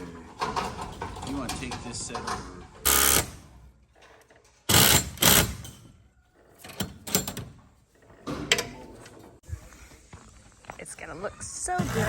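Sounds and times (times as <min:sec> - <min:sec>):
metal parts clattering and scraping: 0:00.0 - 0:09.4.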